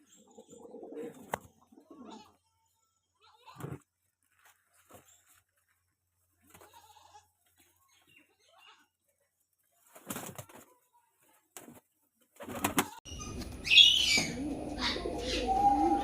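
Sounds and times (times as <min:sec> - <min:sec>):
pigeons cooing: 0:00.0 - 0:02.2, 0:13.6 - 0:16.0
pigeons flapping wings: 0:09.8 - 0:10.7, 0:11.6 - 0:13.0.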